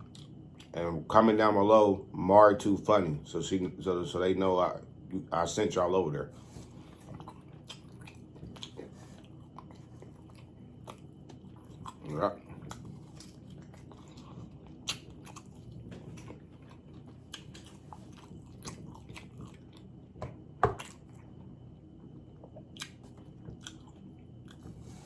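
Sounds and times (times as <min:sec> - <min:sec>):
chewing and mouth smacks: 0:00.0 - 0:00.8, 0:06.6 - 0:25.0
faint low hum: 0:00.0 - 0:25.0.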